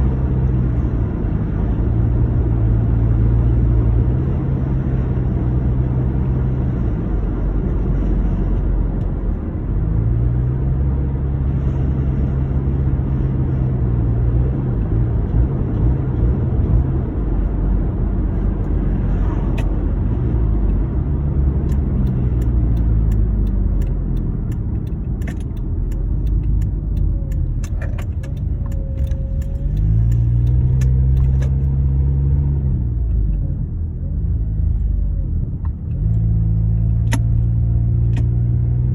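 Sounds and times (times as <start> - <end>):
car engine rumbling and revving: 0.0 - 38.9
sharp irregular clicks: 21.6 - 31.6.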